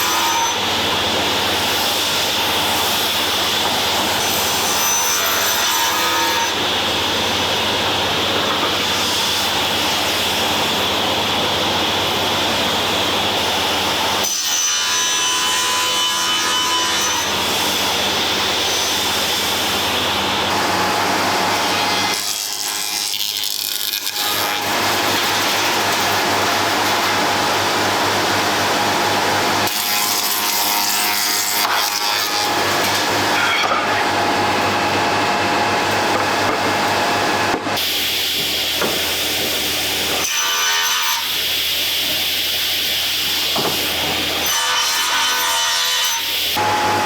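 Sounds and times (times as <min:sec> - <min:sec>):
power tool cutting wood: 0:13.9 - 0:47.0.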